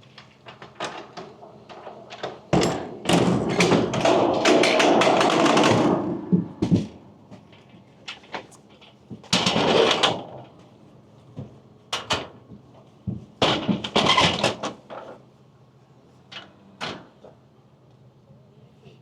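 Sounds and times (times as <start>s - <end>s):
knocks and clattering: 0.0s - 10.7s, 11.3s - 15.2s.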